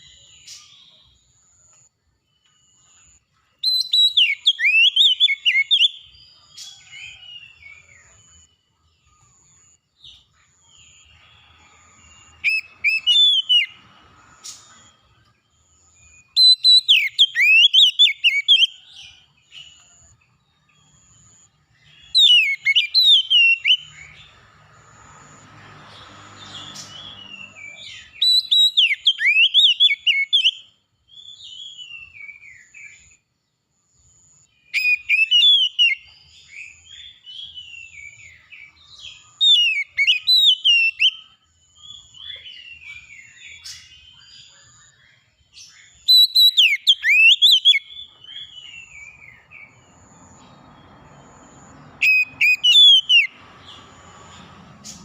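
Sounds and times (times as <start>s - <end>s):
soft bird twittering: 2.4s - 33.2s, 34.2s - 55.0s
songbird whistled phrases: 3.6s - 6.1s, 12.4s - 13.8s, 16.4s - 18.8s, 22.0s - 24.1s, 26.8s - 33.1s, 34.7s - 38.4s, 39.1s - 41.3s, 45.9s - 49.4s, 52.0s - 53.4s.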